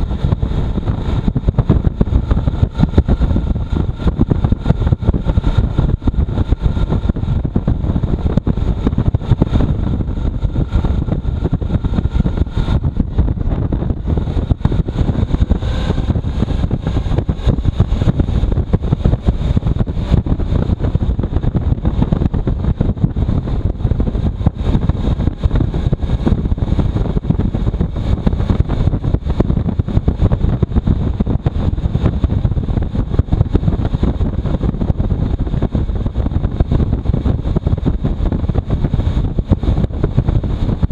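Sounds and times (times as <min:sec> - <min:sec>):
motorcycle engine: 0:00.0 - 0:40.9
wind buffeting microphone: 0:00.0 - 0:40.9.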